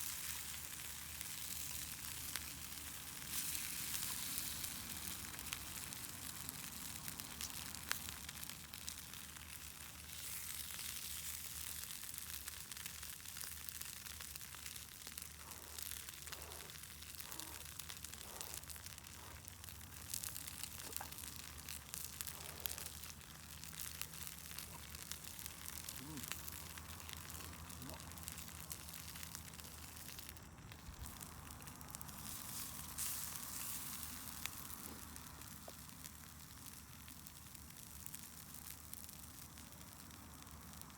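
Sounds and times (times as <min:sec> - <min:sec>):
campfire crackling and popping: 0:00.0 - 0:40.9.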